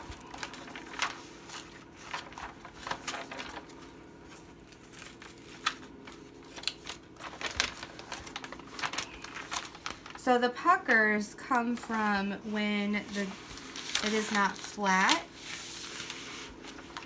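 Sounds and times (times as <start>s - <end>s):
canvas rustling and crinkling: 0.0s - 10.3s, 11.6s - 17.0s.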